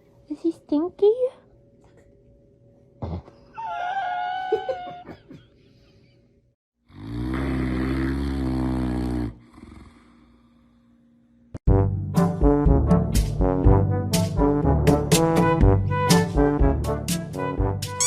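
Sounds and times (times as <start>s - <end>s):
animal high-pitched cry: 3.5s - 5.3s
animal rasping snore-like sound: 6.9s - 10.3s.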